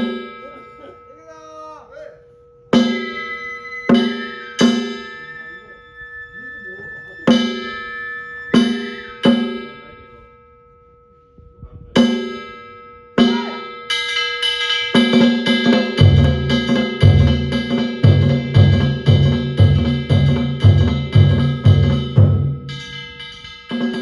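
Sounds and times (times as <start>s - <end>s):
ringing metallic strikes: 0.0s - 24.0s
deep taiko drum beat: 15.0s - 24.0s.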